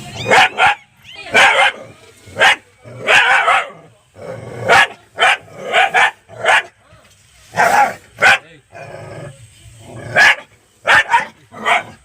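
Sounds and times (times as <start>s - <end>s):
dog barking: 0.2s - 1.8s, 2.4s - 3.7s, 4.7s - 6.7s, 7.6s - 8.4s, 10.2s - 12.0s.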